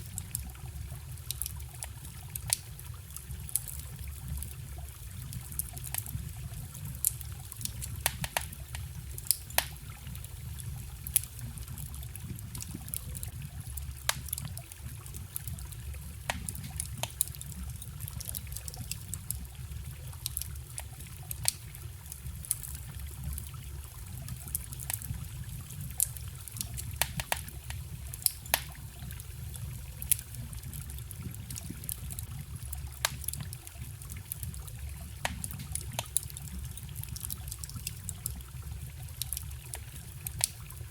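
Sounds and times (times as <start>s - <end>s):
forest stream trickling: 0.0s - 40.9s
wood fire crackling and popping: 0.0s - 40.9s.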